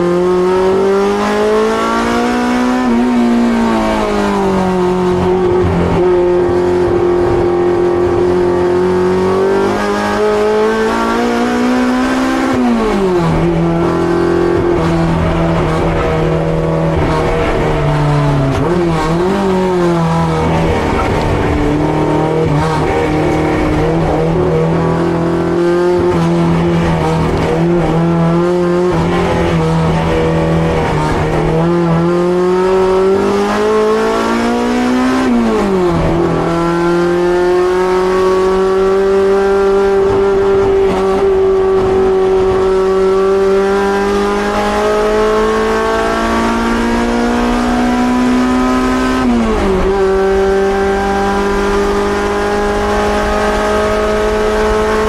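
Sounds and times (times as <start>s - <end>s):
car engine running hard: 0.0s - 55.0s.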